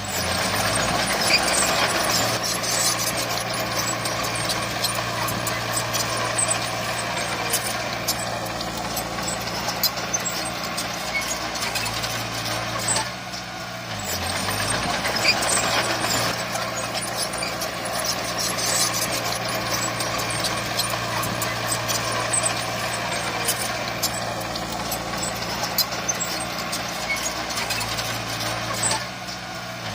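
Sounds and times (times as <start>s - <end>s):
heavy diesel machinery running: 0.0s - 29.9s.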